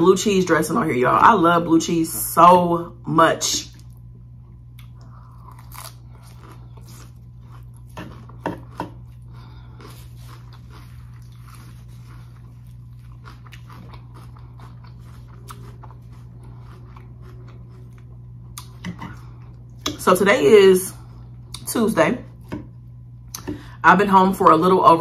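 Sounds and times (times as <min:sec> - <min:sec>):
steady low hum: 0:00.0 - 0:25.0
person chewing crunchy lettuce: 0:03.7 - 0:19.9.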